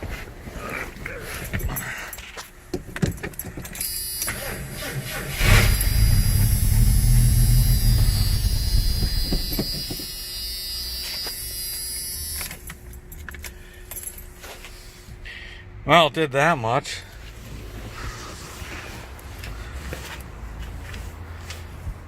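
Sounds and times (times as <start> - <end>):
car engine cranking and running: 1.0 - 10.7.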